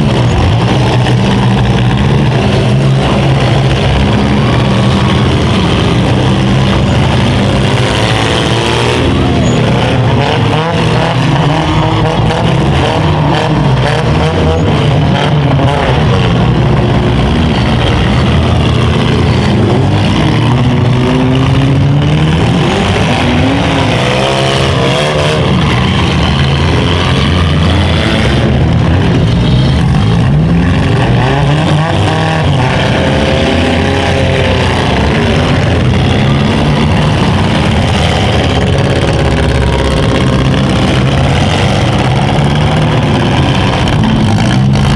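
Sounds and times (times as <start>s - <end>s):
car engines revving: 0.0s - 44.9s.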